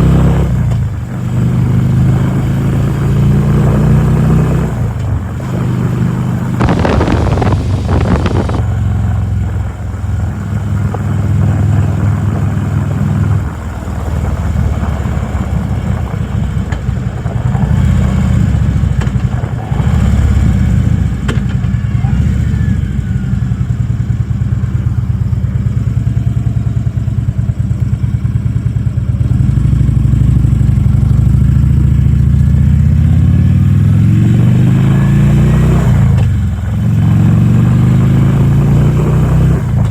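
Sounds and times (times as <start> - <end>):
motorcycle engine running: 6.6 - 8.6
rush of noise: 6.6 - 8.6.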